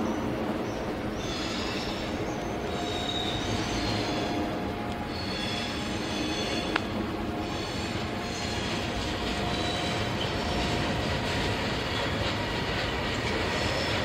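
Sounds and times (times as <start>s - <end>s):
train wheels rumbling on rail: 0.0s - 14.0s
high-pitched wheel squeal: 1.2s - 4.4s, 5.1s - 6.7s, 7.4s - 10.9s.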